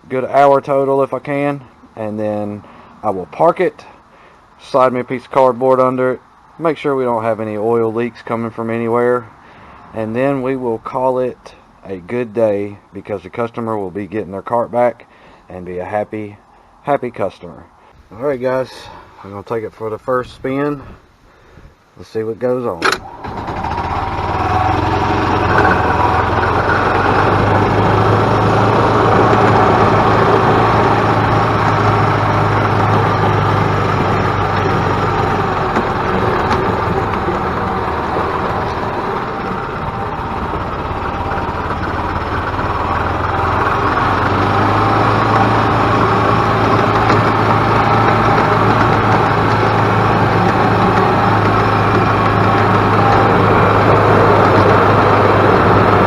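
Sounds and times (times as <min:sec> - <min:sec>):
single-cylinder engine running: 0:22.8 - 0:56.0.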